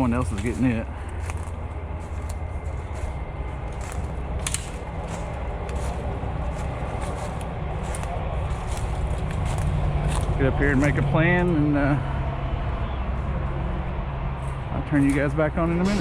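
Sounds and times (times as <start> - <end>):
heavy truck engine idling: 0.0 - 16.0
small snaps and crunches: 3.7 - 11.0.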